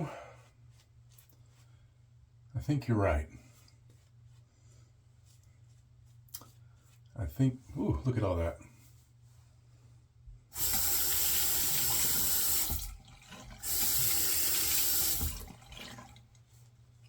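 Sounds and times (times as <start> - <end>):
tap water running into sink: 10.6 - 16.4.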